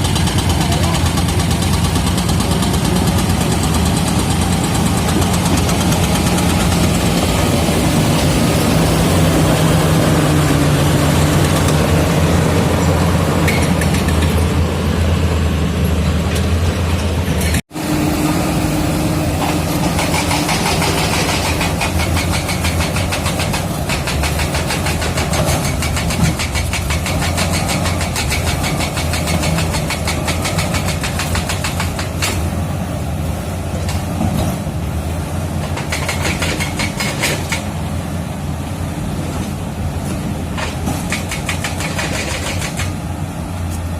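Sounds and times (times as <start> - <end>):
bulldozer diesel engine running: 0.0 - 43.9
fast even clatter: 40.6 - 43.0.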